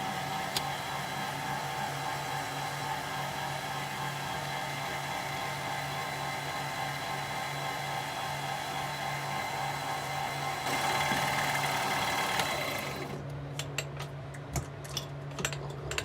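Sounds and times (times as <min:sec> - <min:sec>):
electric motor humming: 0:04.8 - 0:13.2.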